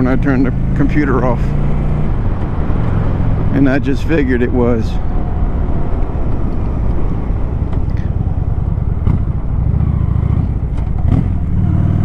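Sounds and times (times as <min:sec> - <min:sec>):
wind rumbling on microphone: 0:01.6 - 0:12.0
motorcycle engine running: 0:05.3 - 0:12.0.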